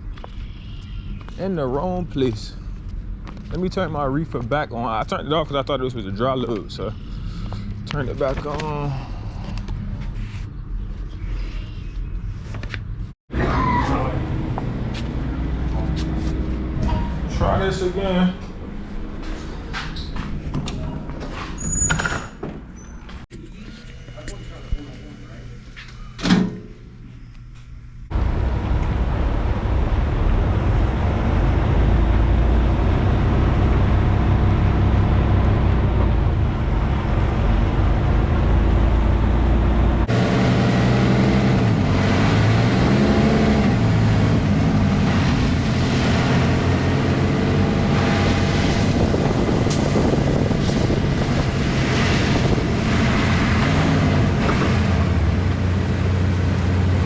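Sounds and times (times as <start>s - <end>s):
truck diesel engine running: 28.1s - 57.0s.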